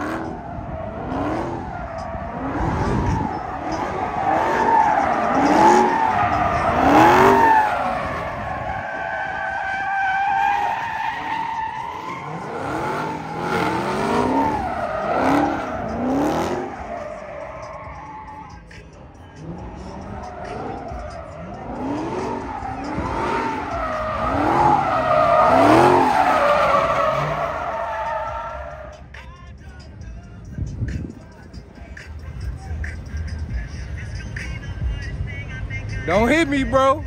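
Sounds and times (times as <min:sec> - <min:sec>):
tires squealing: 0:00.0 - 0:29.3
car engine revving: 0:00.0 - 0:29.8.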